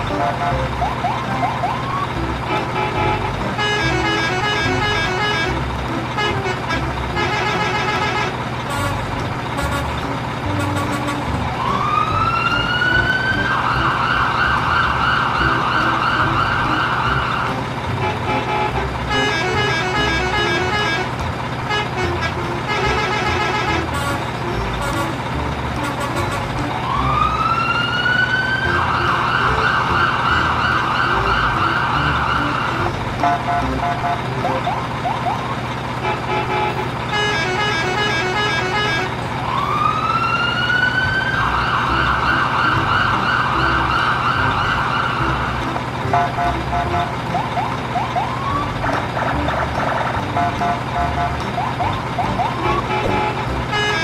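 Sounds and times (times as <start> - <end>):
electronic siren wail: 0.4 - 2.2, 11.4 - 17.6, 26.7 - 35.7, 37.3 - 49.0, 50.2 - 54.0.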